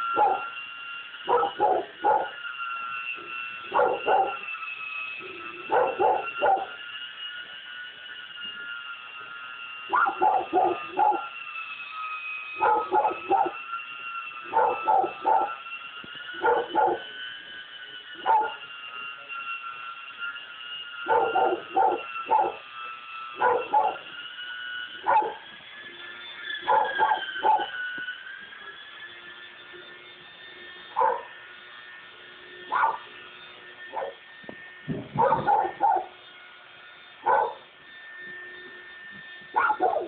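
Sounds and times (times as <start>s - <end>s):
steady high whine: 0.0s - 40.0s
dog barking: 0.2s - 0.4s, 1.3s - 2.3s, 3.7s - 4.4s, 5.7s - 6.8s, 9.9s - 11.3s, 12.6s - 13.6s, 14.5s - 15.6s, 16.4s - 17.0s, 18.3s - 18.6s, 21.1s - 22.6s, 23.4s - 24.0s, 26.7s - 27.7s, 31.0s - 31.3s, 32.7s - 33.0s, 33.9s - 34.2s, 35.2s - 36.1s, 37.2s - 37.6s, 39.6s - 40.0s.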